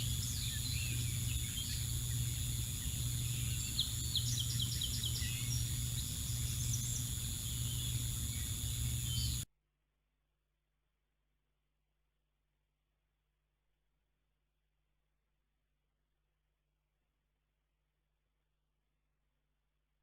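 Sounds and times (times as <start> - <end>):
small birds chirping: 0.0 - 9.4
high-pitched electronic whine: 0.0 - 9.5
low hum: 0.0 - 9.5.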